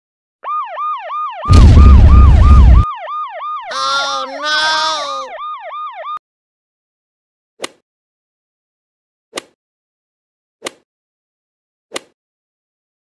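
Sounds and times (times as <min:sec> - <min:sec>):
police siren yelping: 0:00.4 - 0:06.2.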